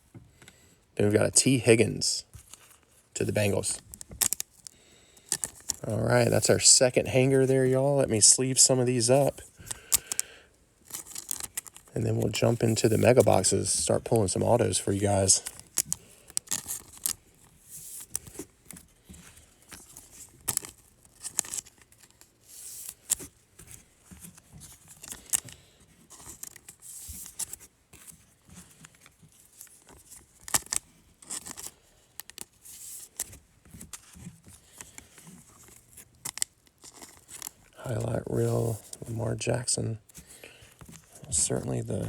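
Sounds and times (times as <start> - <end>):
card edges clicking and tapping: 9.6 - 14.4
plastic sleeves swishing and crinkling: 10.9 - 25.4.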